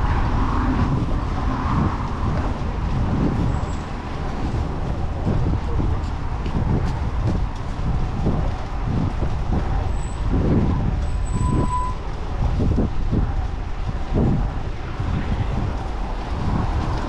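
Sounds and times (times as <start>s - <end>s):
city street traffic: 0.0s - 17.0s
wind buffeting microphone: 0.0s - 17.0s.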